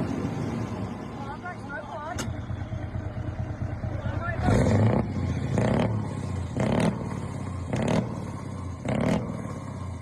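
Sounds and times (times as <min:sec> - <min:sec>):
vehicle engine revving: 0:02.2 - 0:10.0.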